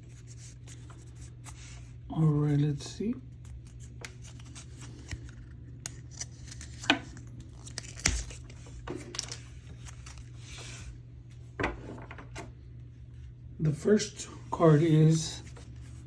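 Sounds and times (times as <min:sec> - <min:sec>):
steady low hum: 0:00.0 - 0:16.0
cellophane tearing and crinkling: 0:03.5 - 0:10.4.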